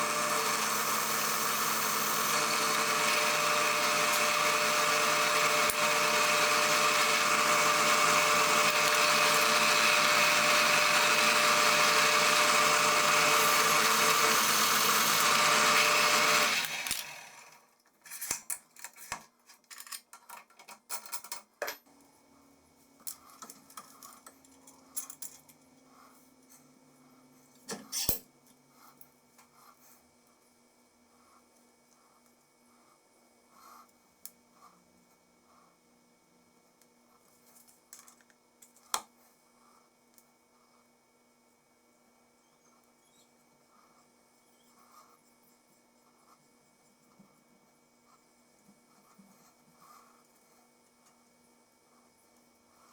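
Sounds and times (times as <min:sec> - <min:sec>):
electric power tool running: 0:00.0 - 0:17.6.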